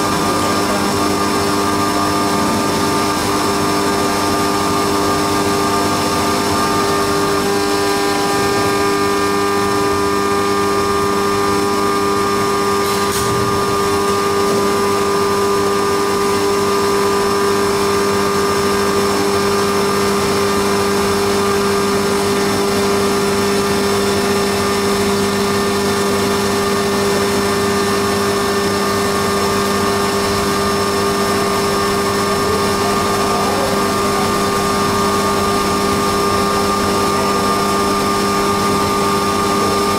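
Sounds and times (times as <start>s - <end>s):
machine whining tones: 0.0s - 16.5s
milling machine hum: 0.0s - 39.9s.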